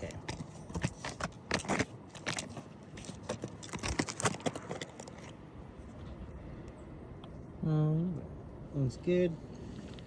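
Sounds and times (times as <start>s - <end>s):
light clicks taps and scrapes: 0.0s - 5.4s.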